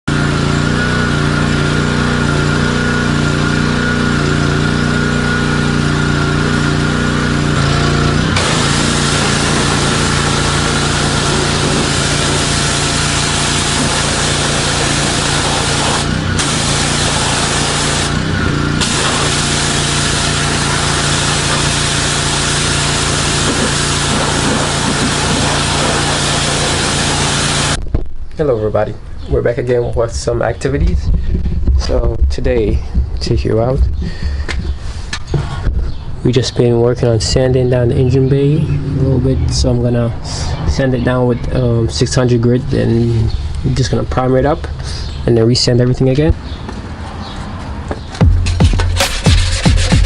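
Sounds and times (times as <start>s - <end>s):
motor humming: 0.1s - 27.8s
wide rushing noise: 8.4s - 27.8s.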